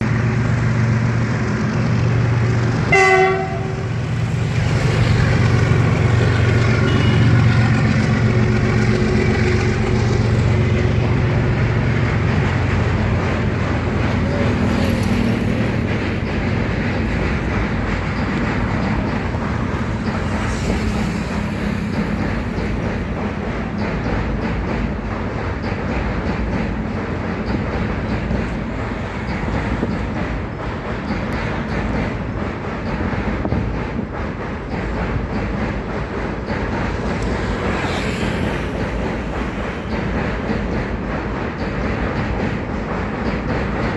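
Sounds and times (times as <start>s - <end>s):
train wagons rumbling: 0.0s - 43.9s
train horn blast: 2.9s - 4.3s, 6.8s - 7.8s.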